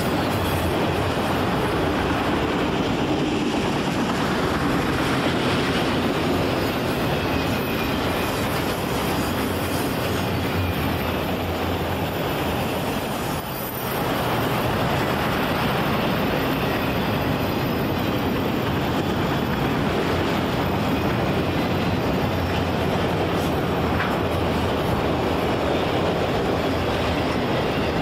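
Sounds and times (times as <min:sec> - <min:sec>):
train wheels rolling on rails: 0:00.0 - 0:28.0.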